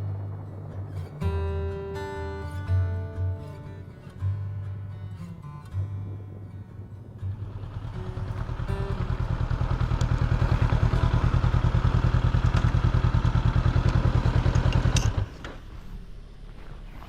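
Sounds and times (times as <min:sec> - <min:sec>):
motorbike engine idling: 0:07.3 - 0:15.9.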